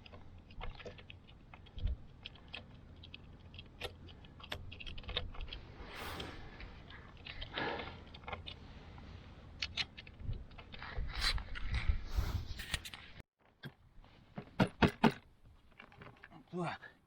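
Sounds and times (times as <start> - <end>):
wind rumble on microphone: 10.2 - 12.7.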